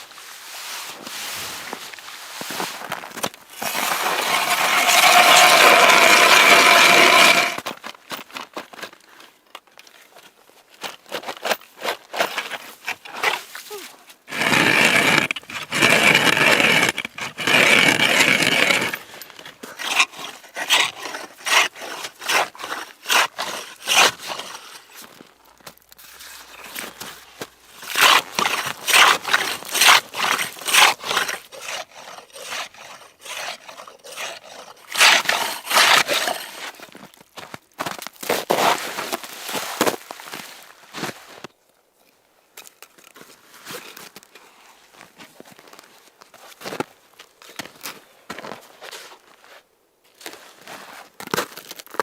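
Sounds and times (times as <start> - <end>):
rough scraping: 0.0 - 7.7, 11.1 - 41.4
short scrapes and knocks: 0.6 - 7.7, 14.3 - 41.4.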